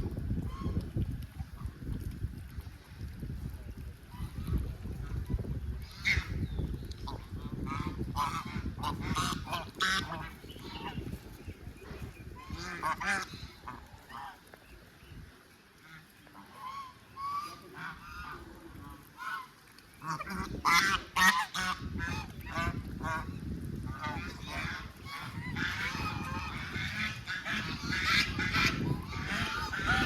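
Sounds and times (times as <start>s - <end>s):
waterfowl honking and calling: 0.4s - 0.8s, 5.8s - 14.6s, 15.7s - 30.0s.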